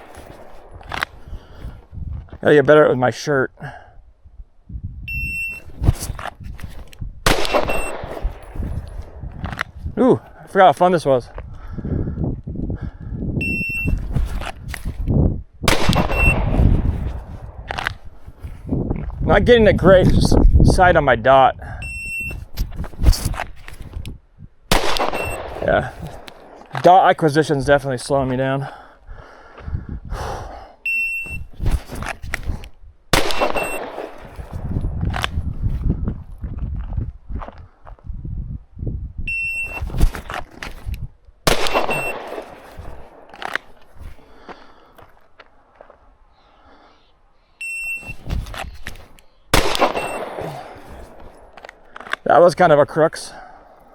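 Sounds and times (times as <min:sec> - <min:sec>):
wind rumbling on microphone: 0:00.0 - 0:02.5, 0:03.9 - 0:26.8, 0:27.5 - 0:44.5, 0:48.0 - 0:51.9
shot timer beep: 0:05.1 - 0:05.6, 0:07.6 - 0:08.0, 0:13.4 - 0:14.0, 0:16.0 - 0:16.6, 0:21.8 - 0:22.4, 0:25.1 - 0:25.5, 0:30.9 - 0:31.5, 0:33.5 - 0:33.9, 0:39.3 - 0:39.8, 0:41.7 - 0:42.2, 0:47.6 - 0:48.2, 0:49.9 - 0:50.3
short beep tone: 0:05.1 - 0:05.7, 0:07.7 - 0:08.0, 0:13.4 - 0:14.0, 0:16.1 - 0:16.5, 0:21.8 - 0:22.4, 0:25.2 - 0:25.4, 0:30.9 - 0:31.5, 0:33.6 - 0:33.8, 0:39.3 - 0:39.9, 0:41.9 - 0:42.2, 0:47.6 - 0:48.3, 0:50.0 - 0:50.3
pistol shot: 0:07.3 - 0:08.6, 0:15.7 - 0:17.5, 0:24.7 - 0:26.6, 0:33.2 - 0:34.6, 0:41.5 - 0:43.4, 0:49.5 - 0:51.4.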